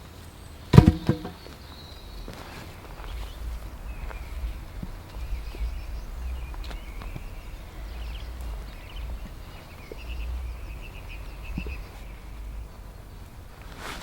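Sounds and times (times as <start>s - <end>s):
small birds chirping: 3.1s - 13.6s.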